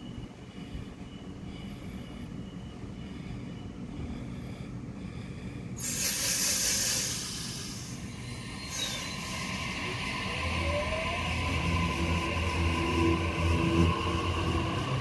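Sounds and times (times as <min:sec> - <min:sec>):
electric train humming: 0:00.0 - 0:15.0
air brakes hissing: 0:05.8 - 0:10.0
faint rising whine: 0:08.0 - 0:15.0.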